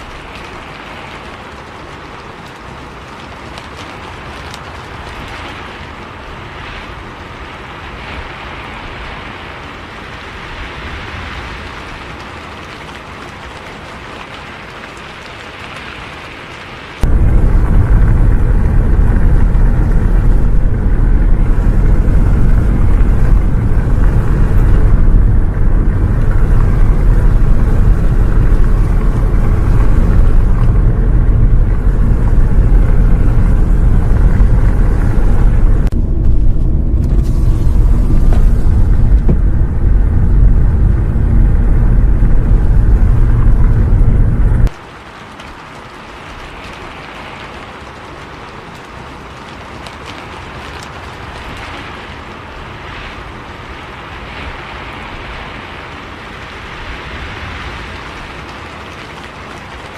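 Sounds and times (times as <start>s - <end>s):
bus engine and road rumble: 0.0s - 44.8s.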